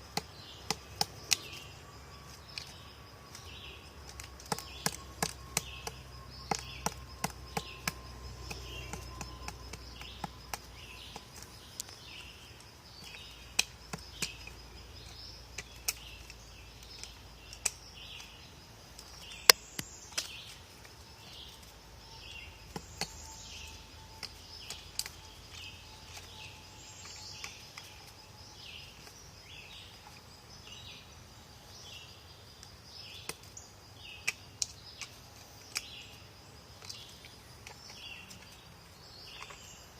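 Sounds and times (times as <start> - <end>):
woodpecker pecking at wood: 0.1 - 21.0, 22.6 - 28.1.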